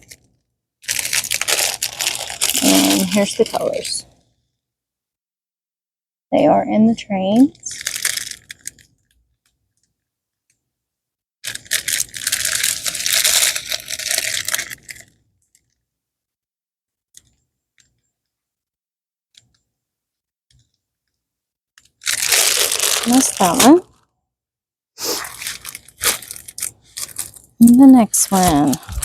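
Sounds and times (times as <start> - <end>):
plastic bags rattling and crinkling: 0.8 - 4.0, 7.7 - 8.8, 11.4 - 15.7, 21.9 - 24.0, 25.2 - 29.0.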